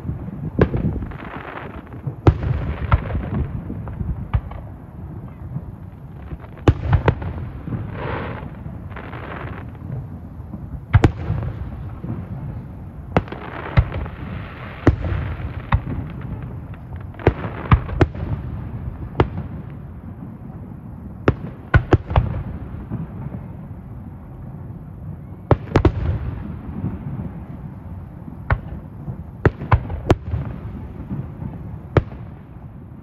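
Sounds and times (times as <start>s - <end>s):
fireworks bursting: 0.0s - 33.0s.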